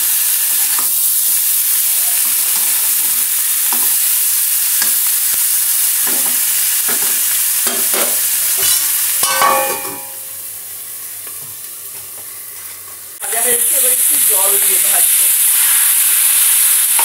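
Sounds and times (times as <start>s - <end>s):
vegetables sizzling in oil: 0.0s - 17.0s
steel lid clattering onto pan: 7.7s - 10.2s.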